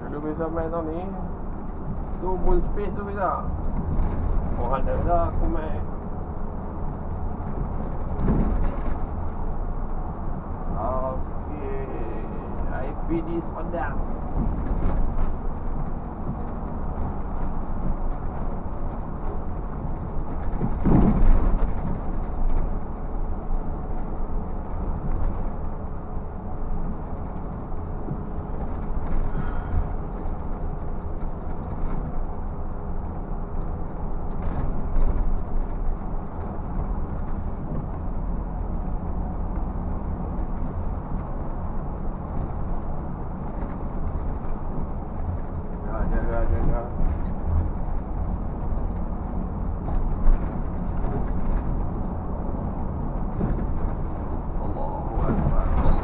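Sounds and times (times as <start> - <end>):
bus engine and road noise: 0.0 - 56.0.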